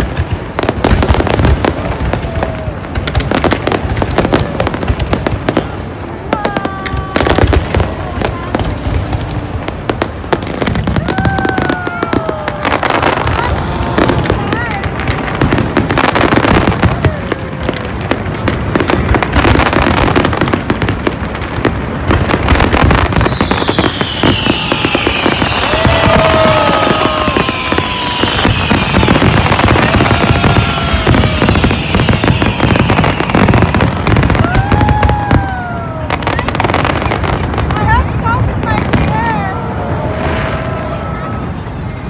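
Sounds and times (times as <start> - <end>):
fireworks crackling and banging: 0.0 - 42.0
high falling whistles: 23.0 - 33.8.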